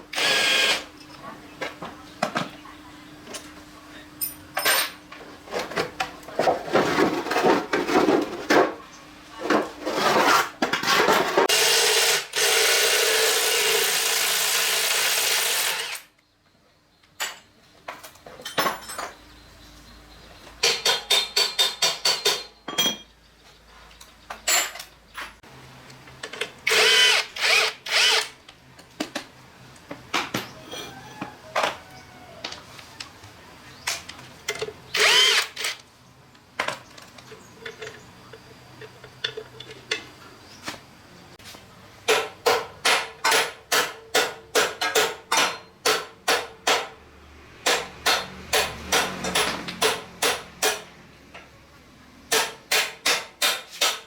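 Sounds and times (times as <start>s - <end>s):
power tool running: 0.1s - 0.9s, 11.5s - 16.1s, 26.6s - 28.4s, 34.9s - 35.8s.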